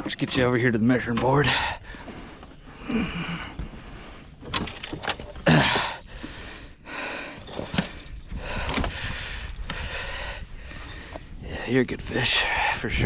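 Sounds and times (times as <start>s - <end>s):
rustling and shuffling: 3.6s - 6.6s, 7.4s - 9.2s.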